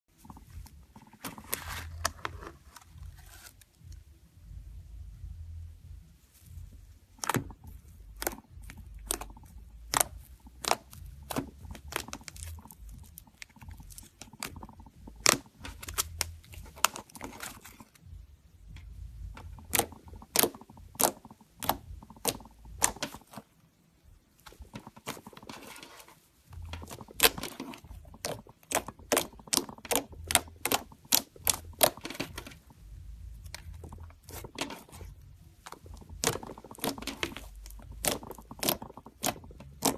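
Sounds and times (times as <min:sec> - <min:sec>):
slime squeezed with clicking pops: 0:07.2 - 0:17.1, 0:19.4 - 0:23.4, 0:26.6 - 0:32.7, 0:33.3 - 0:39.9.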